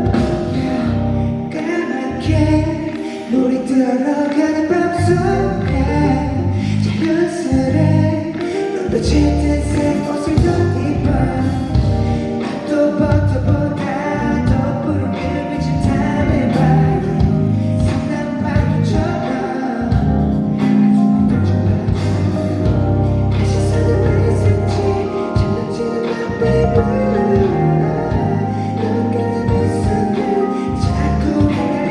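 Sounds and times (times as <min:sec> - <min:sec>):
live band with bass line: 0:00.0 - 0:03.0, 0:04.8 - 0:31.9
person singing: 0:00.0 - 0:31.9.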